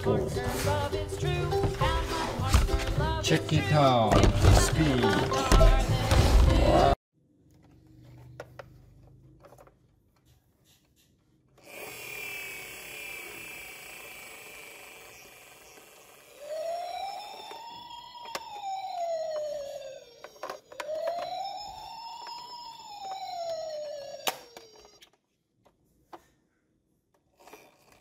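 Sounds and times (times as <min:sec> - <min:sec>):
toy siren slow wail: 0:13.6 - 0:25.1
toy siren warbling tone: 0:14.9 - 0:25.1.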